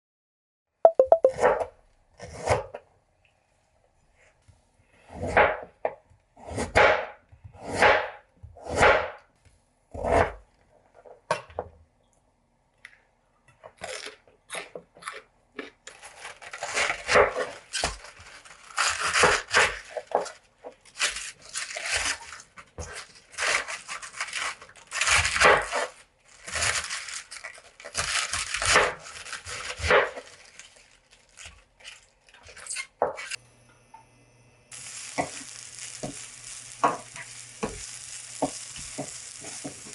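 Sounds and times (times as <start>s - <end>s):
food scraping and rustling: 15.9s - 33.4s, 35.2s - 39.9s
tearing: 15.9s - 33.4s.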